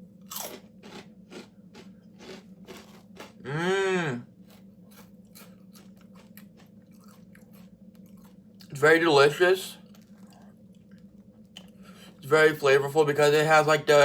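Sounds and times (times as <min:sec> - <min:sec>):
chewing crunchy crackers: 0:00.2 - 0:03.6, 0:04.4 - 0:08.8, 0:09.8 - 0:11.8
person humming mmm: 0:03.4 - 0:04.3.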